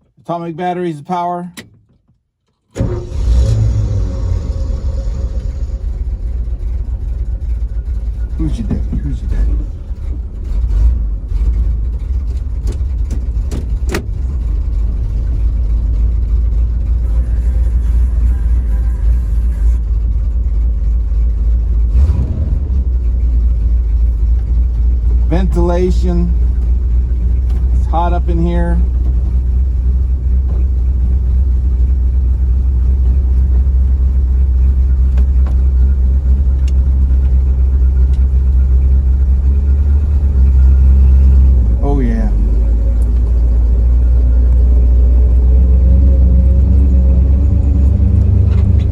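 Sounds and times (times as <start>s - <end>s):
truck engine rumbling: 2.8s - 48.9s.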